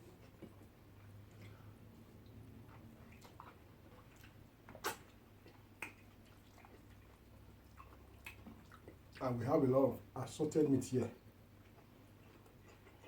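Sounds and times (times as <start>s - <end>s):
low steady hum: 0.0s - 13.0s
quiet chewing: 0.1s - 9.4s, 11.5s - 13.0s.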